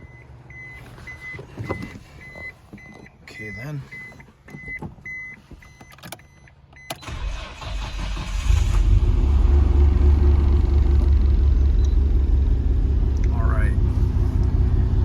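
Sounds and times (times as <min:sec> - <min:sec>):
car engine idling: 0:07.0 - 0:15.0.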